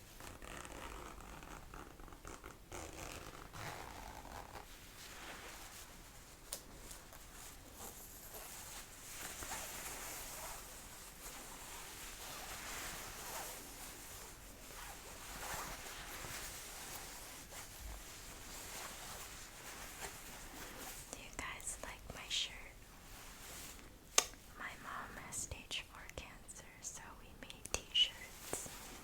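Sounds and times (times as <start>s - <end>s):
jacket fabric rustling: 0.1s - 21.8s, 22.9s - 25.0s, 27.9s - 29.0s
small click: 24.2s - 24.4s.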